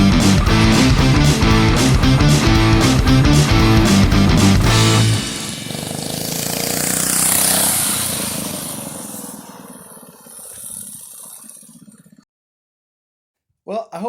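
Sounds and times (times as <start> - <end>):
minibike engine passing by: 3.5 - 12.1.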